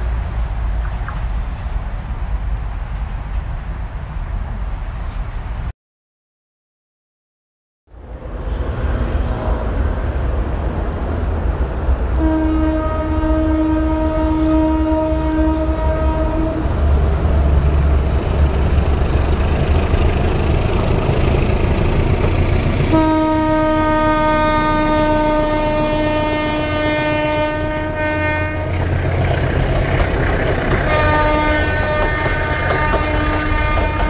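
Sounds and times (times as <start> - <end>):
diesel train engine rumble: 0.0 - 5.7, 7.9 - 34.0
train horn blast: 12.2 - 16.8, 22.9 - 28.9, 30.8 - 34.0.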